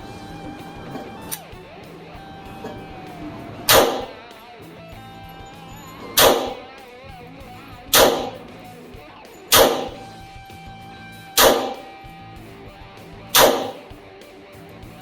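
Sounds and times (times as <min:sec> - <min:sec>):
background guitar music: 0:00.0 - 0:15.0
pistol shots: 0:03.7 - 0:04.2, 0:06.2 - 0:06.6, 0:07.9 - 0:08.4, 0:09.5 - 0:10.0, 0:11.4 - 0:11.9, 0:13.4 - 0:13.9.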